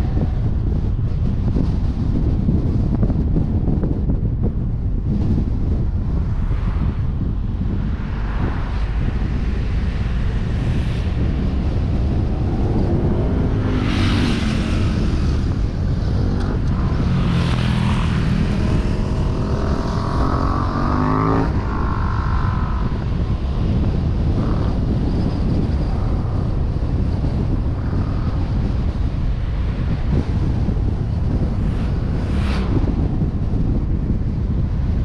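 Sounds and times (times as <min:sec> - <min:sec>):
wind rushing over camera: 0:00.0 - 0:35.0
vehicle engine accelerating: 0:07.2 - 0:28.8.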